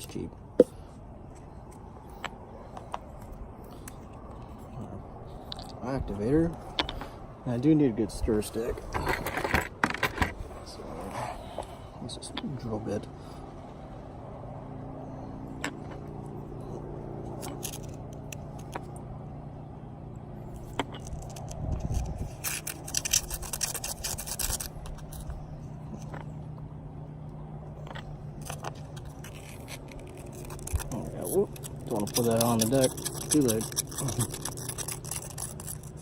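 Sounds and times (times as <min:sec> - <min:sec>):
steady low hum: 0:00.0 - 0:36.0
drill bit scraping in cup: 0:20.6 - 0:25.4, 0:28.4 - 0:36.0.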